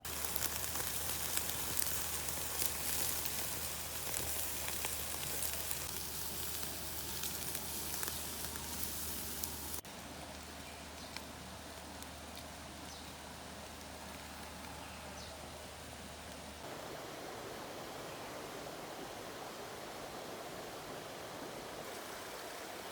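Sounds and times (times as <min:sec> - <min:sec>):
meat sizzling on barbecue: 0:00.0 - 0:14.6
steady rushing noise: 0:16.6 - 0:22.9.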